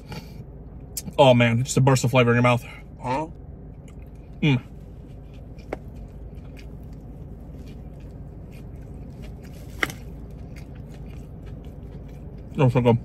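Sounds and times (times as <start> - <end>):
low car interior hum: 0.0 - 13.0
person chewing: 3.8 - 12.6.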